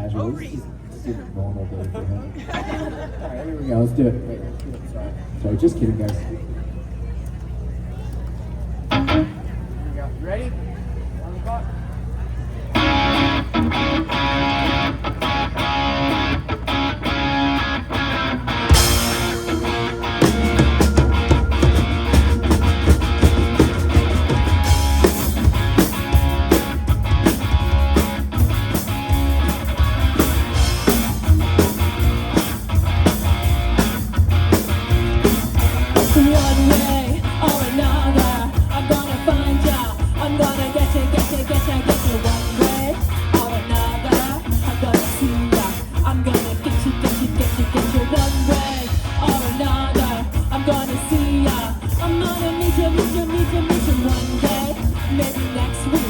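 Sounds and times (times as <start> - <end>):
rock band playing: 8.9 - 9.4, 12.7 - 56.0
person singing: 36.0 - 56.0.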